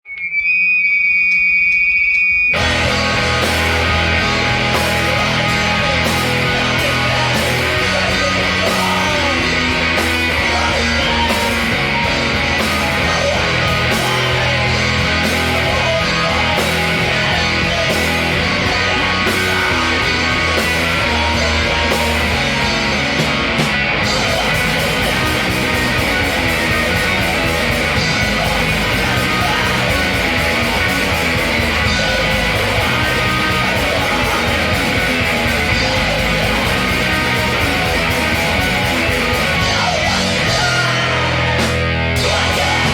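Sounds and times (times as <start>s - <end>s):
electric guitar: 2.5s - 42.9s
rock band playing: 2.5s - 42.9s.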